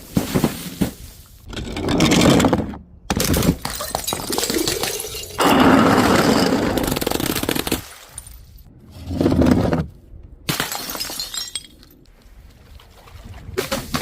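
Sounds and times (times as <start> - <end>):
glass breaking and crunching: 3.1 - 5.7, 10.5 - 12.0
glass crash: 3.1 - 5.7, 10.5 - 12.0.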